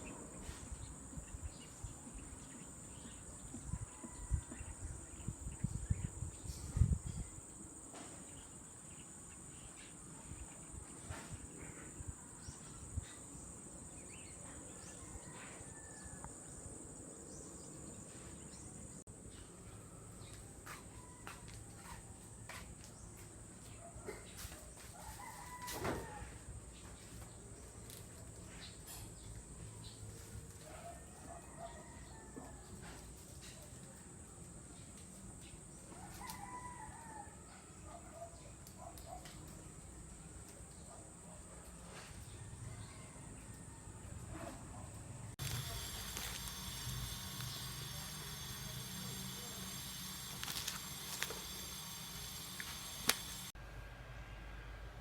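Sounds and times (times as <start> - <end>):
rooster crowing: 25.0 - 26.4, 31.2 - 33.0, 36.0 - 37.6
steady high hiss: 45.3 - 53.6
insects chirring: 45.4 - 53.6.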